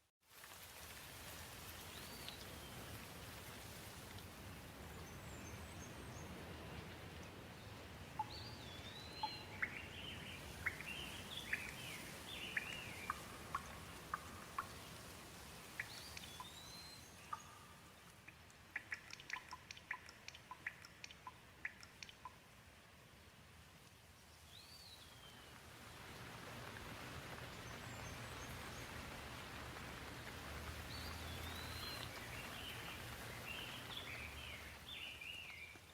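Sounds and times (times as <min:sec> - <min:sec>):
light rain falling: 0:00.0 - 0:35.9
water dripping: 0:00.3 - 0:07.4, 0:08.1 - 0:22.9, 0:23.8 - 0:35.9
bird chirping: 0:08.2 - 0:14.9, 0:15.7 - 0:22.4, 0:30.9 - 0:35.9.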